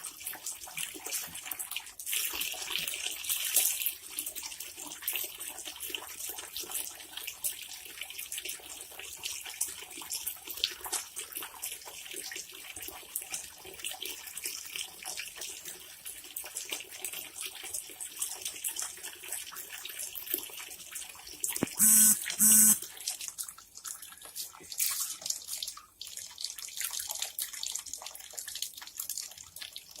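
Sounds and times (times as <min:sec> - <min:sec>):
tap water running and splashing: 0:00.0 - 0:21.7, 0:22.8 - 0:30.0
small clicks: 0:21.6 - 0:22.8.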